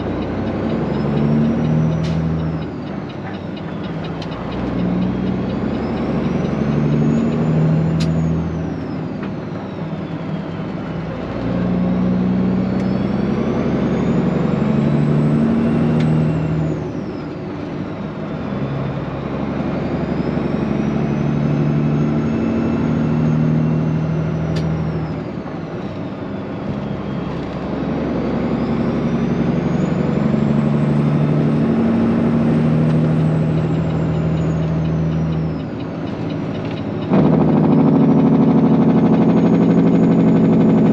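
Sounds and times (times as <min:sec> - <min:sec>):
truck diesel engine pulling hard: 0:00.0 - 0:40.9.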